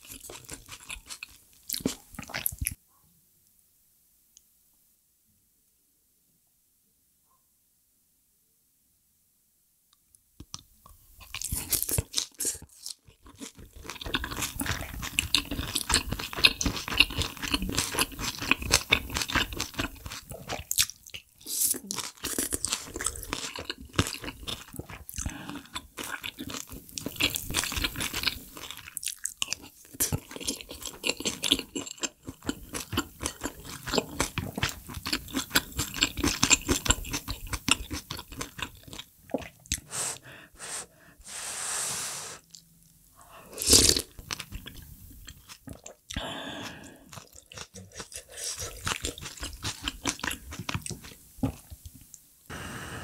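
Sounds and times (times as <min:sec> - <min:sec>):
chewing and crunching food: 0:00.0 - 0:02.8, 0:10.5 - 0:39.9, 0:42.5 - 0:52.3.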